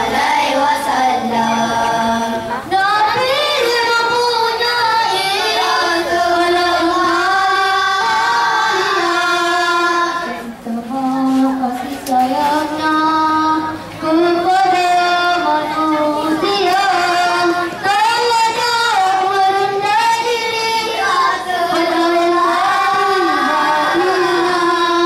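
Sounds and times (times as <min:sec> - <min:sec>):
boys singing into microphones: 0:00.0 - 0:25.0.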